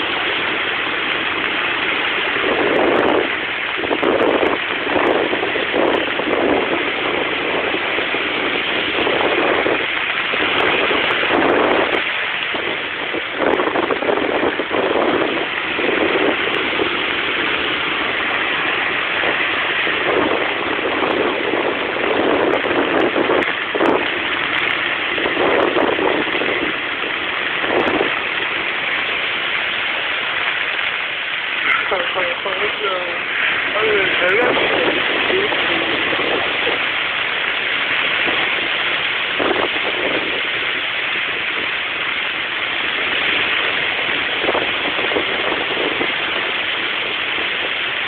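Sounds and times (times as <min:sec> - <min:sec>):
waves breaking on shore: 0:00.0 - 0:48.0.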